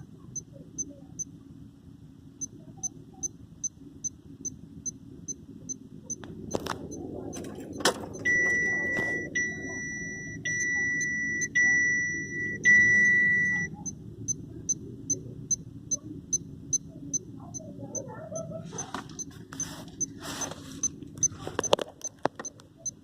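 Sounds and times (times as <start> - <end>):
faint regular ticking: 2.4 - 20.2, 20.8 - 23.0
car warning chime beeps: 6.9 - 19.3.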